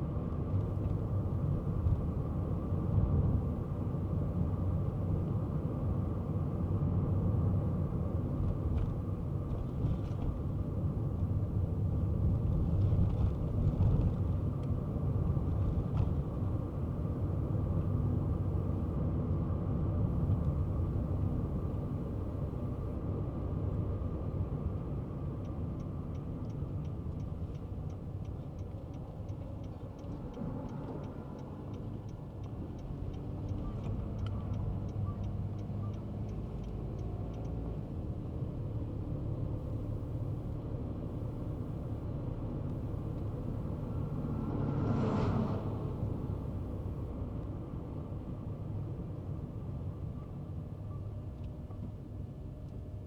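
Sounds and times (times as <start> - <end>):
car engine and tyres rumbling: 0.0 - 53.0
turn signal indicator ticking: 25.4 - 38.0.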